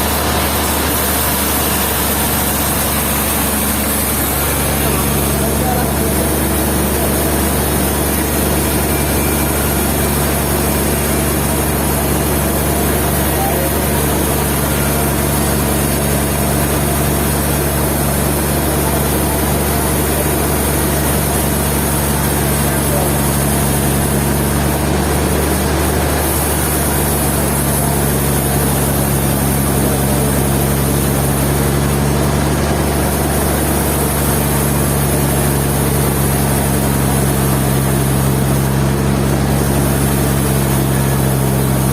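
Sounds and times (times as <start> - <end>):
sawmill machinery humming: 0.0 - 41.9.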